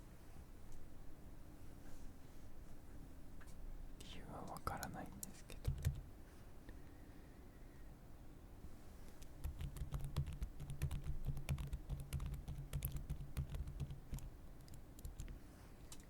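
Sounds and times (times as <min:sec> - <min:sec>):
computer keyboard typing: 0:05.0 - 0:06.1, 0:09.2 - 0:16.0.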